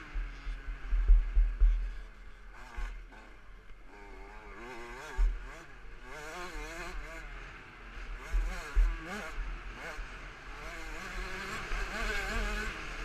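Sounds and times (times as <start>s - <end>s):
motocross engine revving: 0.0s - 13.0s
heavy low thumps: 0.1s - 2.1s.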